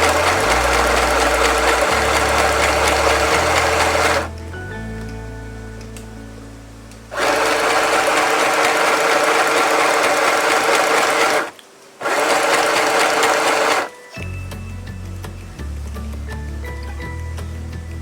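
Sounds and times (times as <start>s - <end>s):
electric sewing machine stitching: 0.0s - 4.3s, 7.1s - 13.9s.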